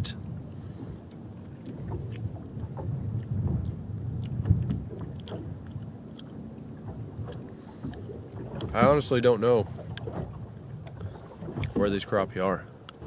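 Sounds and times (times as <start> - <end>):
wind rumble on microphone: 0.0 - 13.0
person chewing: 5.2 - 6.4
wet mouth clicks: 5.2 - 6.4.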